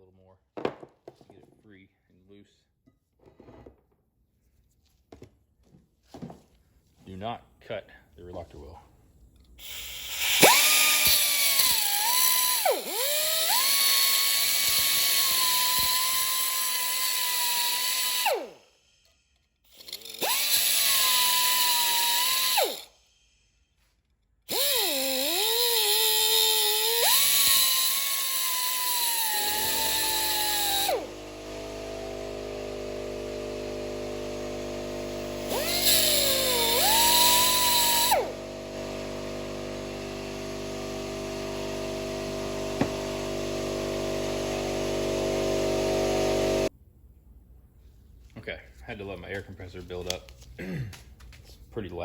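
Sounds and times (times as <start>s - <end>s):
pneumatic cutoff wheel whining: 9.6s - 23.5s, 24.5s - 46.7s
air compressor humming: 24.5s - 46.7s.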